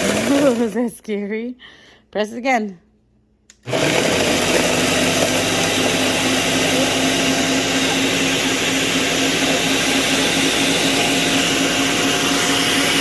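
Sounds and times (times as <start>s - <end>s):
blender grinding cookies: 0.0s - 0.8s, 3.5s - 13.0s.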